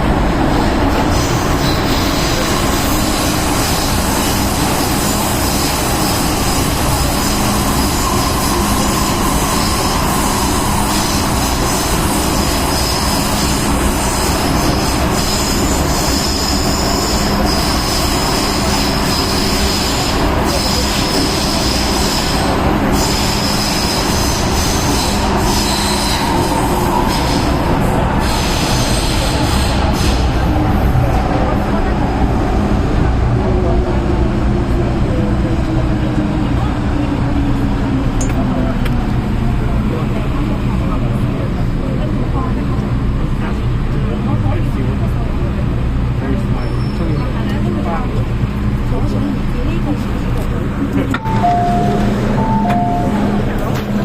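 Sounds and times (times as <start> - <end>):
wheel and rail running noise: 35.0 - 54.0.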